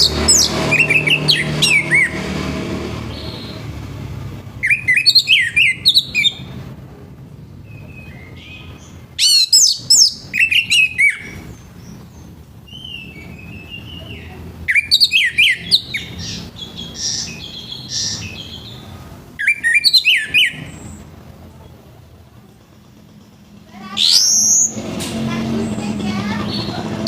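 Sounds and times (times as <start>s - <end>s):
thrush singing whistled phrases: 0.0s - 2.4s, 4.6s - 6.5s, 7.6s - 21.0s, 23.8s - 24.8s.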